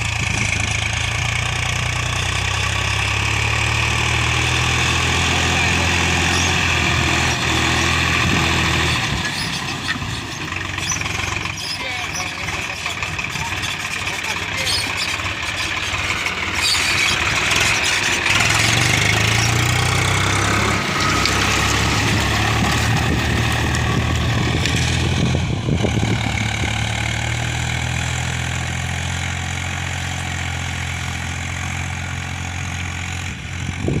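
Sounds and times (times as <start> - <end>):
tractor diesel engine idling: 0.0 - 34.0.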